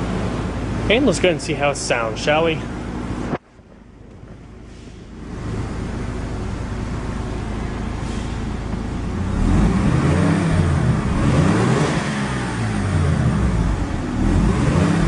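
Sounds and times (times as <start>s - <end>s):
rotary engine revving: 7.5s - 15.0s.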